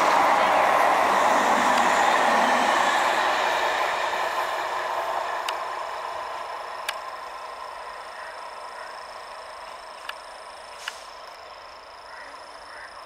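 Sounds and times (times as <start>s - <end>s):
electric train rumbling on rails: 0.0s - 13.0s.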